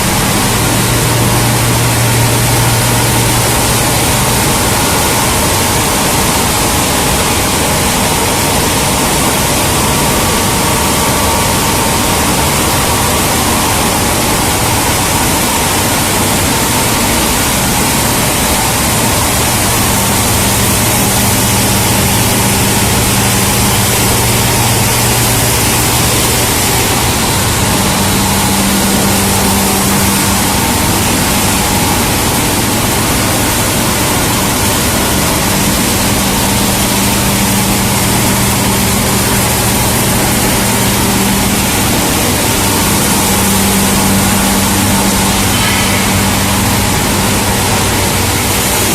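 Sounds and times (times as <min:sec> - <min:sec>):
low hum: 0:00.0 - 0:48.9
machinery running: 0:00.0 - 0:48.9.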